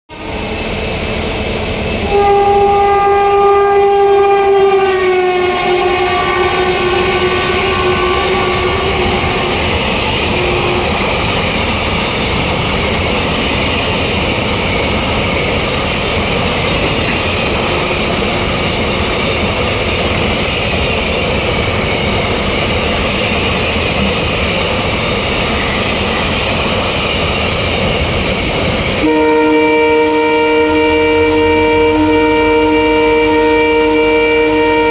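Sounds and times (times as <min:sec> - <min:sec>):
locomotive horn: 0:02.0 - 0:09.6, 0:10.2 - 0:11.2, 0:17.6 - 0:18.6, 0:29.0 - 0:34.9
train wagons rolling: 0:06.1 - 0:29.2.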